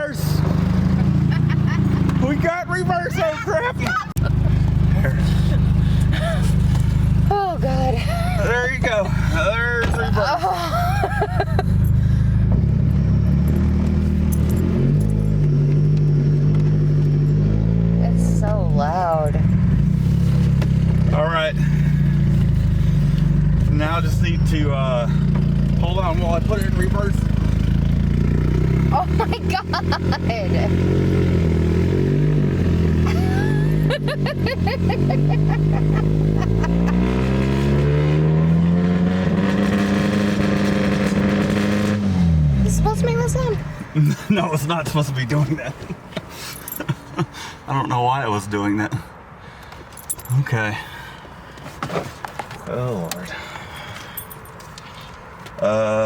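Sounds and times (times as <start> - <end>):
car engine running loud: 0.0 - 45.7.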